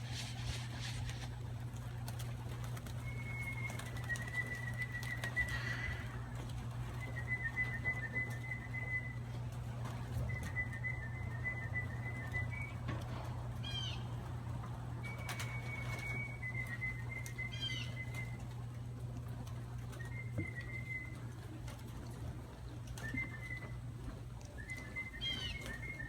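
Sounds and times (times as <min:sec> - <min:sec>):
steady low hum: 0:00.0 - 0:26.0
young birds calling: 0:00.3 - 0:14.5, 0:15.2 - 0:18.5, 0:24.7 - 0:26.0.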